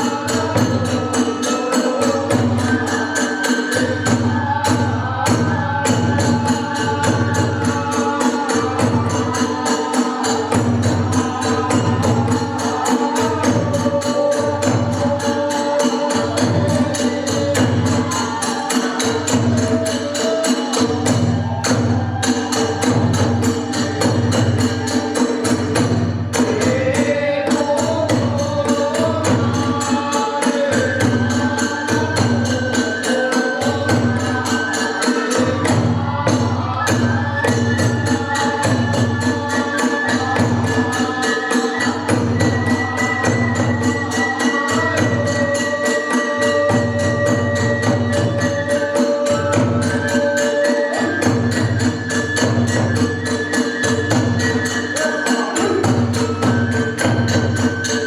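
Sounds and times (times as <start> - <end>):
bamboo flute melody: 29.2 - 58.0.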